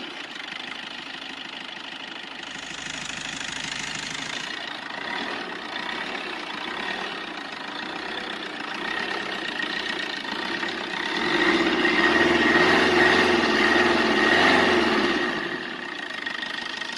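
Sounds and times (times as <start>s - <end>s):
car engine revving: 2.4s - 15.8s.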